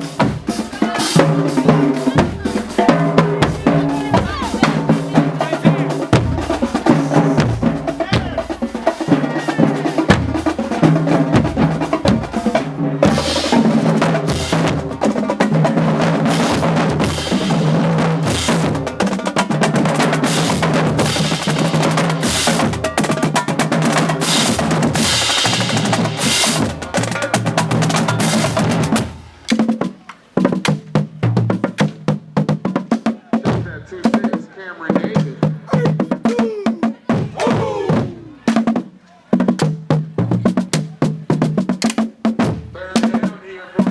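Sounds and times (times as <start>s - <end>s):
marching band playing: 0.0s - 43.9s
snare and bass drum beat: 0.0s - 43.9s.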